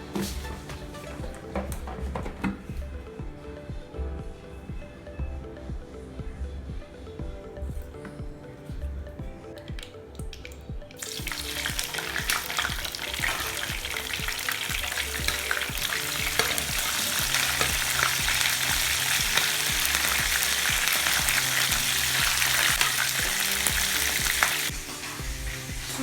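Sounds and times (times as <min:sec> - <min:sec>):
meat sizzling in hot oil: 0:11.0 - 0:26.0.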